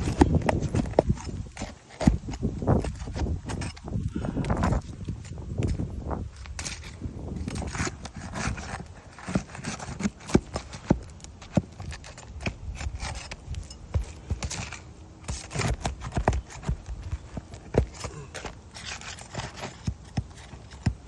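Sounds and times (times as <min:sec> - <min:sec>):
scraping on roof shingles: 0:00.0 - 0:03.9, 0:06.4 - 0:21.0.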